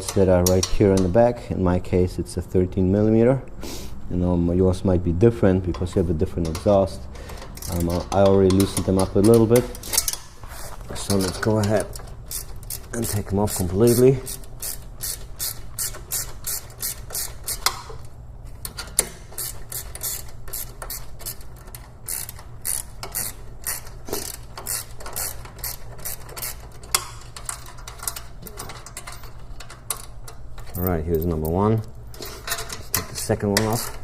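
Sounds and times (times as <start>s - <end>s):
hand ratchet clicking: 5.8s - 10.4s, 11.1s - 18.0s, 18.6s - 31.6s.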